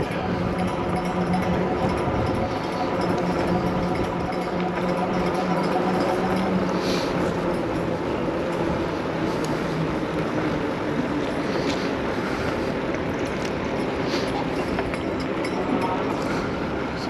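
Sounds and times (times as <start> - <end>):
wind rush: 0.0 - 5.8.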